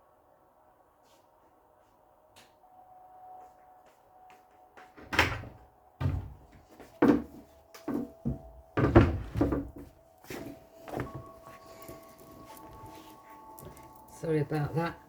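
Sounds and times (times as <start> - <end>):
door being shut: 5.0 - 7.3, 8.8 - 9.8
household knocks and thuds: 5.2 - 9.9.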